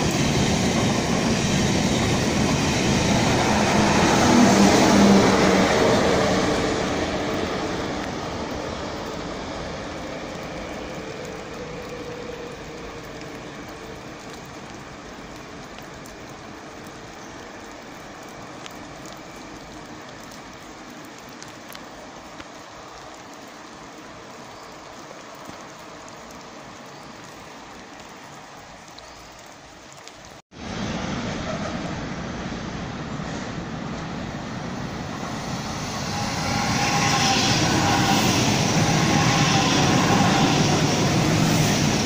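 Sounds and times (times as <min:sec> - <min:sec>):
high-speed train passing: 0:00.0 - 0:20.3, 0:30.5 - 0:42.0.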